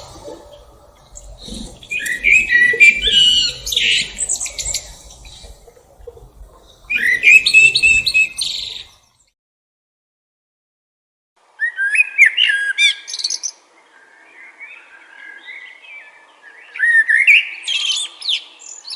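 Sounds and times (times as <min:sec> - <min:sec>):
faint bird calls: 0:00.0 - 0:09.0
thrush singing whistled notes: 0:00.0 - 0:09.1.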